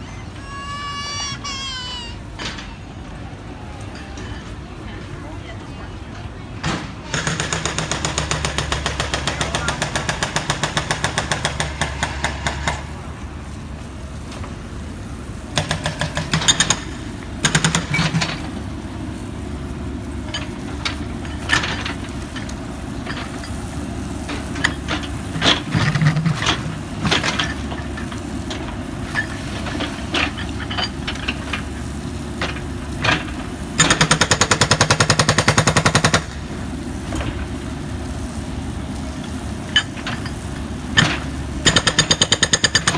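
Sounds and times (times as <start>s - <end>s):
scattered knocks: 6.6s - 13.0s, 15.6s - 18.6s
jackhammer hammering: 6.6s - 14.6s, 15.4s - 37.9s, 39.2s - 42.9s.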